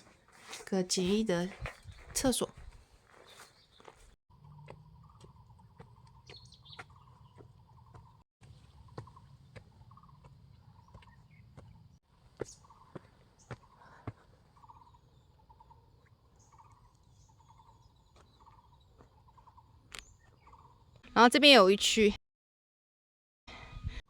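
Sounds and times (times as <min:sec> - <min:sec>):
footsteps on gravel: 0:00.0 - 0:11.8.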